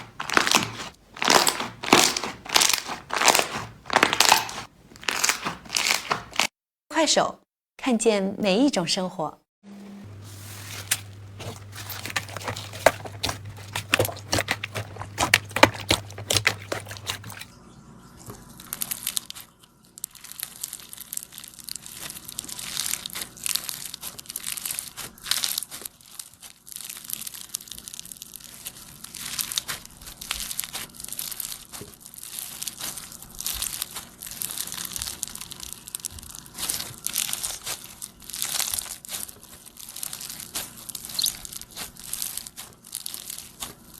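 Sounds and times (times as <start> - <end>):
slime crackling and popping: 0.0 - 6.5, 11.4 - 17.4, 18.6 - 43.9
low steady hum: 9.7 - 25.4.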